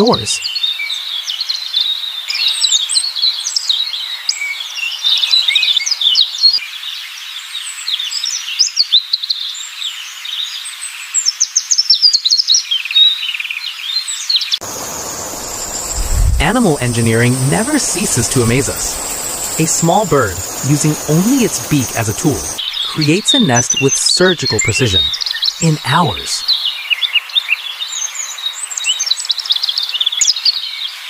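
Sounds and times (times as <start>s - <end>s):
steady high tone with hiss: 14.6s - 26.4s
songbirds chirping: 14.7s - 26.5s.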